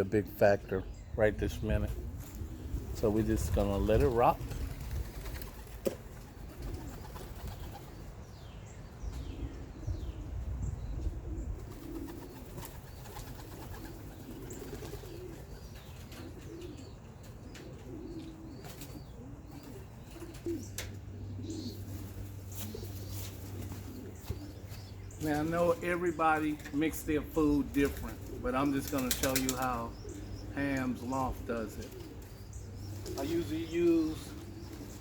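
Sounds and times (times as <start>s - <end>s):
pigeons cooing: 0.0s - 35.0s
wind rumbling on microphone: 0.8s - 13.1s.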